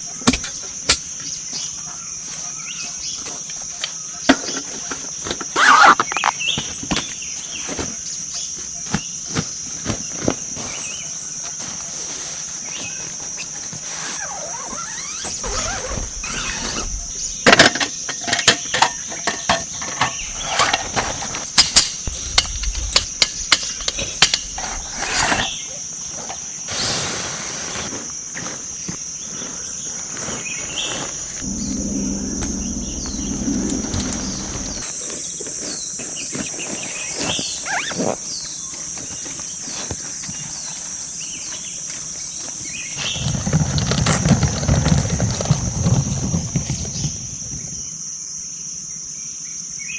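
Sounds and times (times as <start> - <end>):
insects droning: 0.0 - 35.0
low hum: 31.1 - 34.8.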